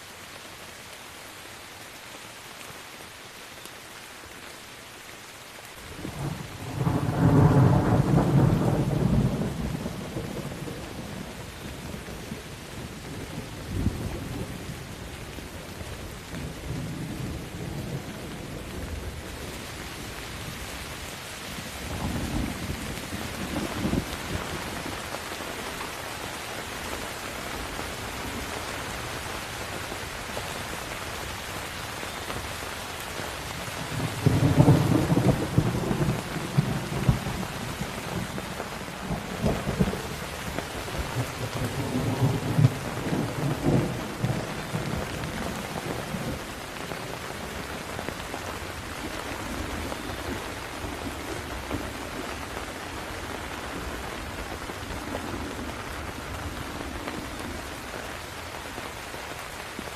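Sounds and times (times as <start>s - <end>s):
heavy rain: 0.0s - 59.9s
rolling thunder: 6.1s - 11.4s, 33.8s - 46.5s.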